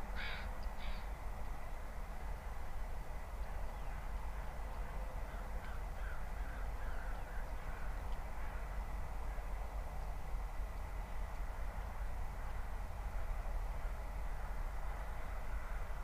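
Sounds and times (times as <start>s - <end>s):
steady low rumble: 0.0s - 16.0s
bird calling: 0.1s - 1.1s, 5.3s - 8.6s.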